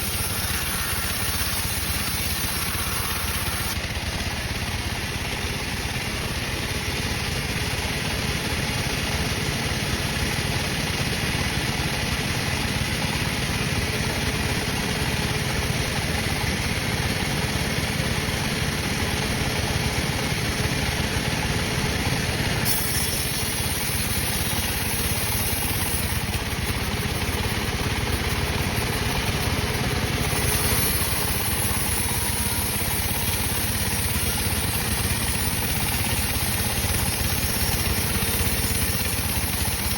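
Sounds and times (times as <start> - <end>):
high hiss: 0.0 - 3.8, 22.7 - 39.9
sawmill machinery drone: 0.0 - 39.9.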